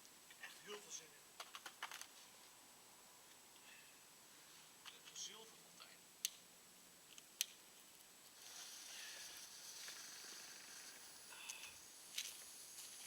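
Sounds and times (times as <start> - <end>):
firework fuse hissing: 8.2 - 13.0.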